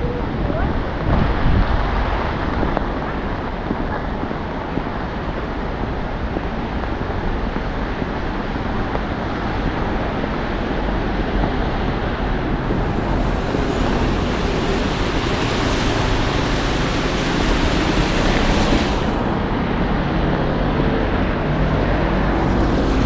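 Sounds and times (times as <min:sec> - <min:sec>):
road traffic on wet street: 0:00.0 - 0:23.0
hiss: 0:12.7 - 0:19.8.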